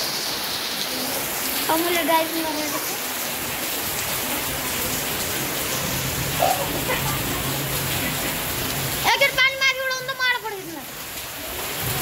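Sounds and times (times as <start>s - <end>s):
rain pouring: 0.0s - 12.0s.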